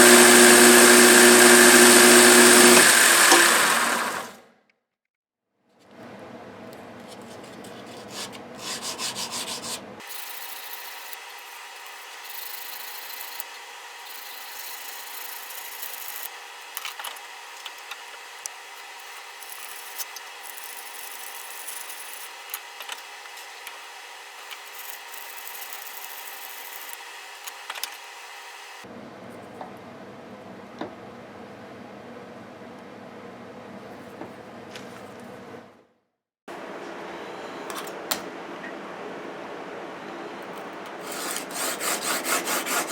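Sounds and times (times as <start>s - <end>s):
plane iron scraping on sharpening stone: 14.1s - 16.3s, 41.0s - 42.9s.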